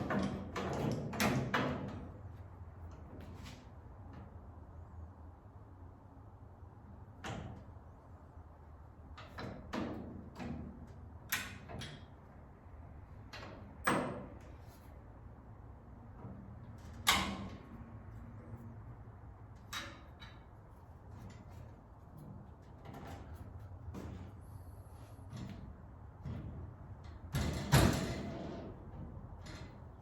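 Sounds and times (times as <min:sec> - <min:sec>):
metal parts knocking and clunking: 0:19.5 - 0:24.4.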